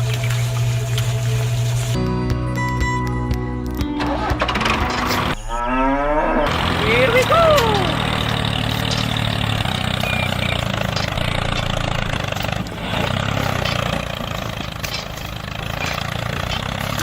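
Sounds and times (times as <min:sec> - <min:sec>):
tractor engine idling: 0:03.9 - 0:05.4, 0:06.5 - 0:17.0.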